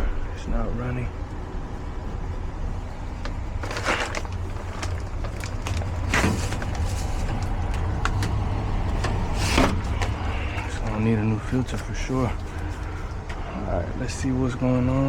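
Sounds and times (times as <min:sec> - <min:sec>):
blower fan humming: 0:00.0 - 0:15.0
air filter scraping and rustling: 0:03.0 - 0:13.5.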